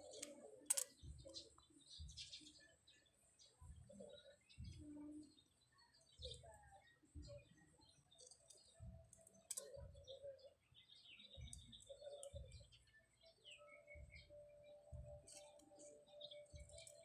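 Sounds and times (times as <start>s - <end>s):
soft clicks: 0.0s - 2.3s, 8.2s - 9.8s
faint bird chirps: 0.0s - 17.0s.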